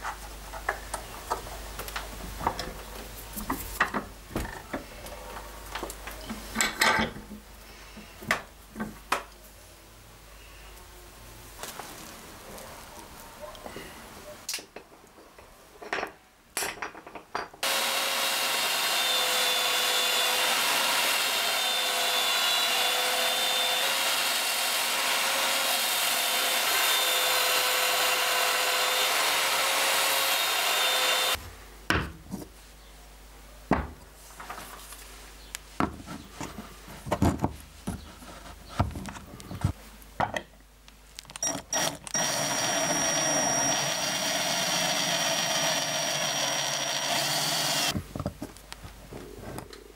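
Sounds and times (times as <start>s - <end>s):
belt sander grinding wood: 17.6s - 31.4s, 41.4s - 48.0s
electric drill boring through steel: 17.6s - 31.4s, 41.4s - 48.0s.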